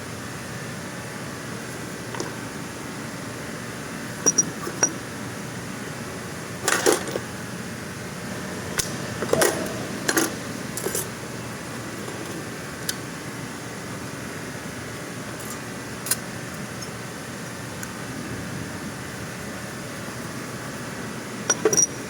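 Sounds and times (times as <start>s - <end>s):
steady mechanical hum: 0.0s - 22.0s
metal tools clinking: 4.2s - 5.0s, 6.6s - 7.2s, 21.5s - 22.0s.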